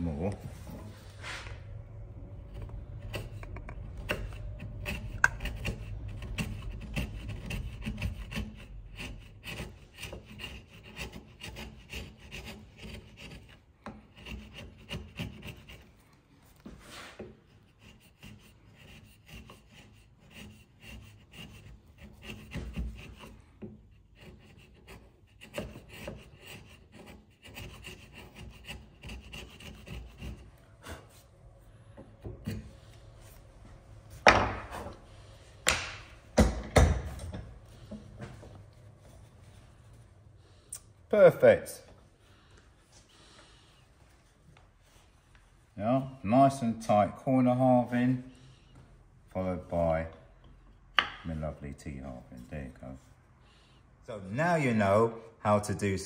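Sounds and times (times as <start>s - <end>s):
chisel scraping wood: 2.2s - 31.2s, 31.9s - 33.4s, 34.2s - 39.2s, 50.4s - 51.2s.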